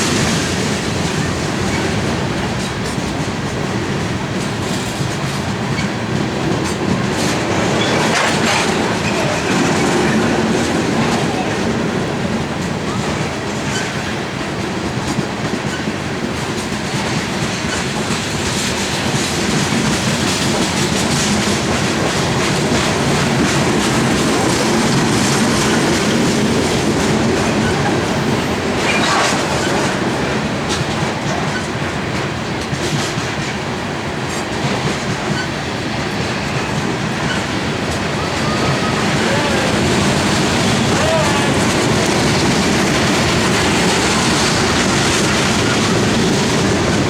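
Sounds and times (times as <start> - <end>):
clickety-clack over rail joints: 0.0 - 47.0
train wheels rumbling on rails: 0.0 - 47.0
wheel scraping on rail: 17.4 - 31.7, 34.3 - 47.0.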